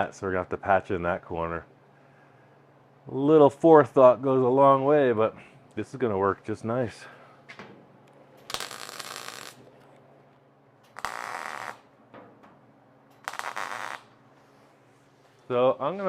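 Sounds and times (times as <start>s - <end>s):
power tool on sheet metal: 11.0s - 11.8s, 13.2s - 14.1s.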